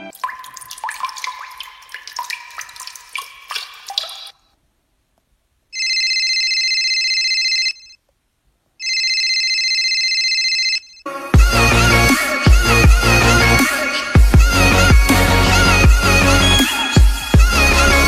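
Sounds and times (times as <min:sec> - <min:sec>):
pitched water-drop plinks: 0:00.0 - 0:04.4
telephone ringing: 0:05.8 - 0:08.0, 0:08.8 - 0:11.1.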